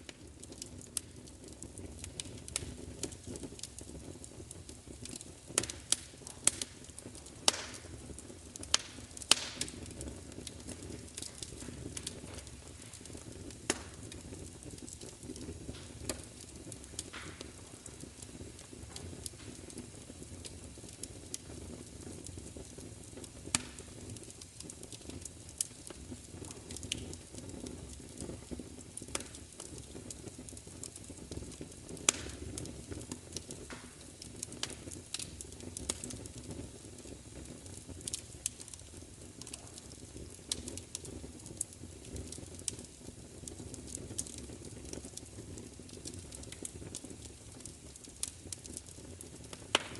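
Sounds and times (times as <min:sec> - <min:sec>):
fire crackling: 0:00.0 - 0:49.9
fire popping and snapping: 0:00.0 - 0:49.9.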